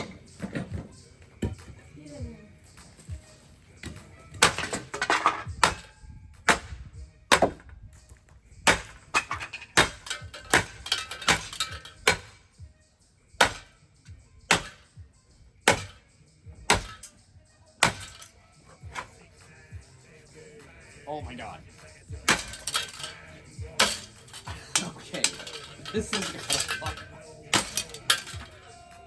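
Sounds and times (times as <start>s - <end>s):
ceiling fan being smashed: 4.4s - 5.9s, 8.7s - 12.3s, 13.4s - 13.7s, 14.5s - 14.8s, 15.7s - 16.0s, 16.7s - 17.1s, 17.8s - 19.1s, 22.2s - 28.7s.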